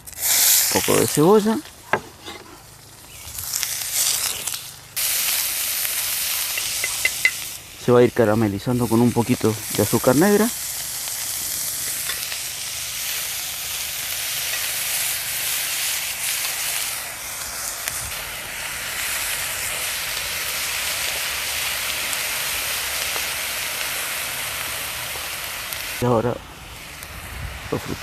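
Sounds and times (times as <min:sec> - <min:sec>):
onion sizzling in a pan: 0:00.0 - 0:28.0.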